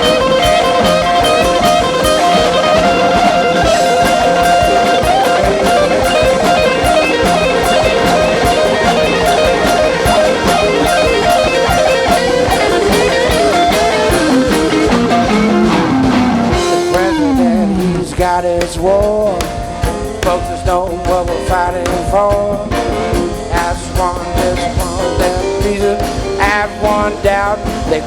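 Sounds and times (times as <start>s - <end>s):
electric guitar solo: 0.0s - 18.1s
drum kit: 0.0s - 28.0s.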